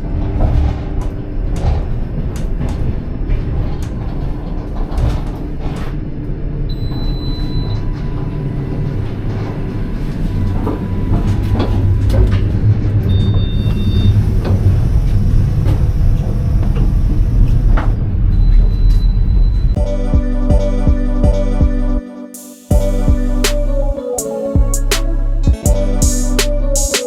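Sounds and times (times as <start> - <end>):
train carriage rumbling: 0.0 - 18.4.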